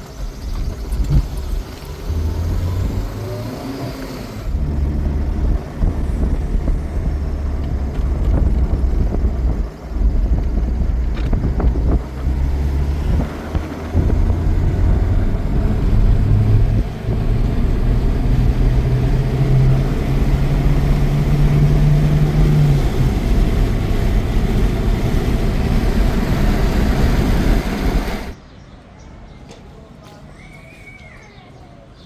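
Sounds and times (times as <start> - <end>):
engine humming: 0.0 - 28.4
steady rushing noise: 4.4 - 28.4.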